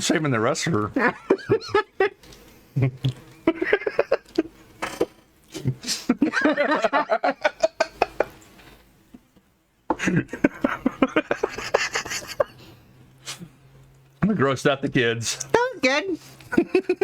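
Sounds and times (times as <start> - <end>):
people laughing and giggling: 1.0 - 2.2, 2.8 - 4.5, 5.8 - 8.4, 9.9 - 12.7, 16.4 - 17.0.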